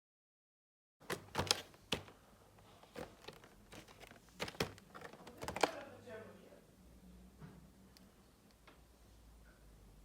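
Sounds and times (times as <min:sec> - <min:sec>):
packaging clicks and taps: 0:01.0 - 0:05.9
packaging crinkling: 0:01.1 - 0:05.9.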